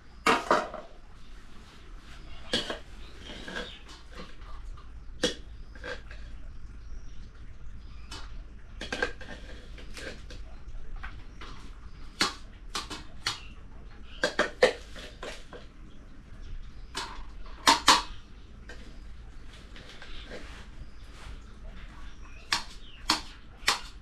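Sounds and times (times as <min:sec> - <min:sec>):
dishes and utensils clattering: 0:00.2 - 0:00.9, 0:02.4 - 0:04.4, 0:17.0 - 0:19.0.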